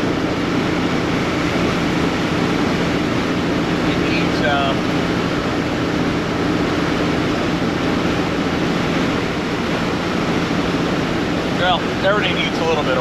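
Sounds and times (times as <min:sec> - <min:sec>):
low hum: 0:00.0 - 0:13.0
road and wind noise: 0:00.0 - 0:13.0
truck engine drone: 0:00.0 - 0:13.0.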